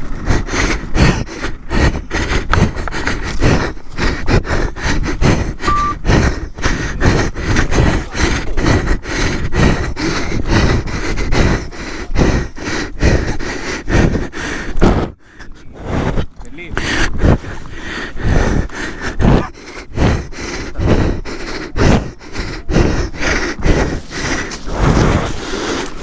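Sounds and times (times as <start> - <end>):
short beep: 5.7 - 6.0.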